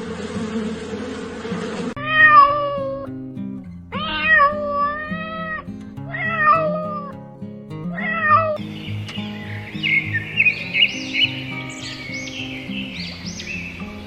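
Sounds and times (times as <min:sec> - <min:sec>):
cat meowing: 0:02.0 - 0:03.1, 0:03.9 - 0:07.2, 0:07.9 - 0:08.6.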